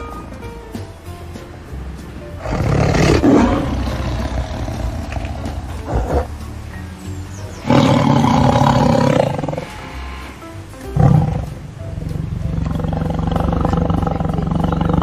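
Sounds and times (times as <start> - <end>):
background music: 0.0 - 15.0
tiger roaring: 2.4 - 6.4, 7.6 - 15.0.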